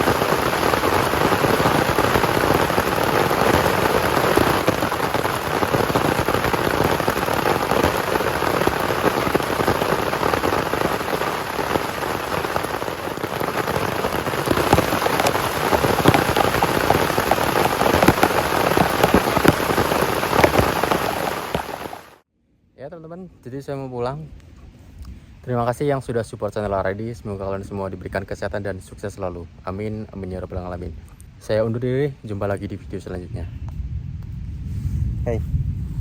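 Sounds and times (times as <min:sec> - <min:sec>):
heavy rain falling: 0:00.0 - 0:22.2.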